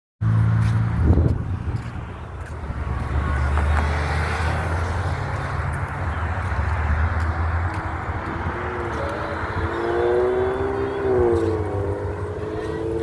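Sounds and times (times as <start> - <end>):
motorcycle engine running: 8.0 - 13.0.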